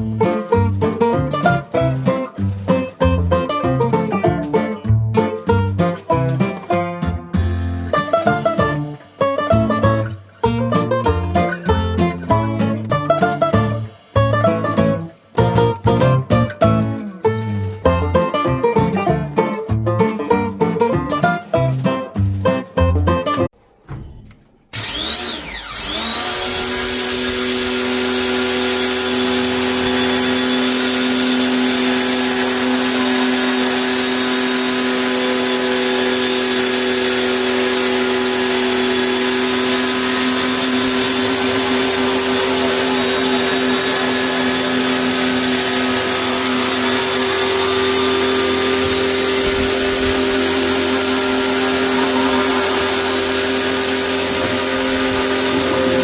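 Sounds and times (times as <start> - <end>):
electric motor spinning: 24.8 - 56.0.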